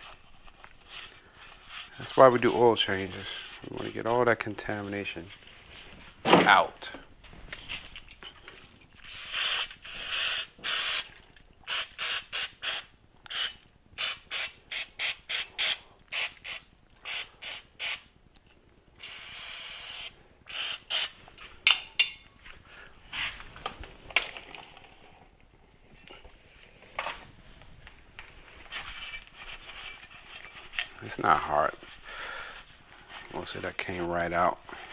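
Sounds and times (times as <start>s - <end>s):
hissing spray bursts: 9.2s - 11.1s, 11.7s - 18.0s.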